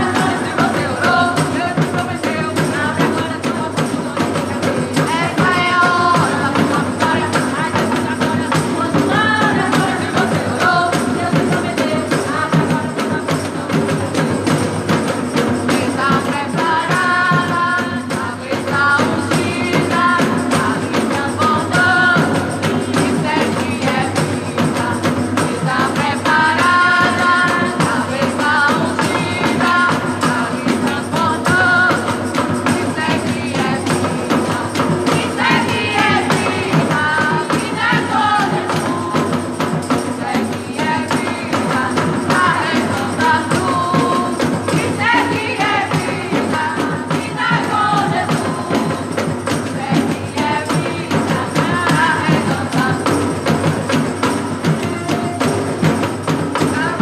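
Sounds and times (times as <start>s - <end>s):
sung vocals: 0.0s - 53.6s, 56.6s - 57.0s
steady percussion: 0.0s - 57.0s
gospel band playing: 34.0s - 41.0s, 41.6s - 49.5s.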